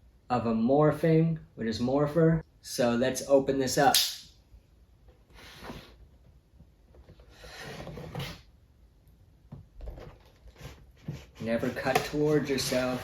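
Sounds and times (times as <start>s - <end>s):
blade scraping through cardboard: 10.6s - 13.0s.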